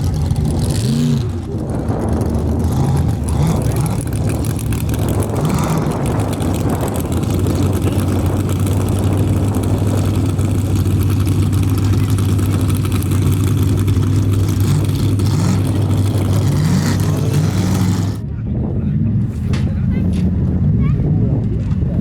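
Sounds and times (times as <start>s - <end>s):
race car engine running: 0.0s - 18.3s.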